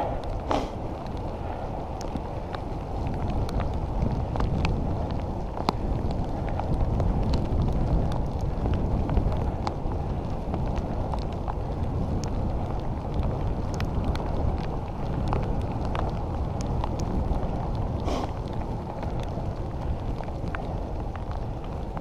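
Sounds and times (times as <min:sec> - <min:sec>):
wet road noise: 0:00.0 - 0:22.0
wind on microphone: 0:00.0 - 0:22.0
light ticks: 0:10.5 - 0:21.8.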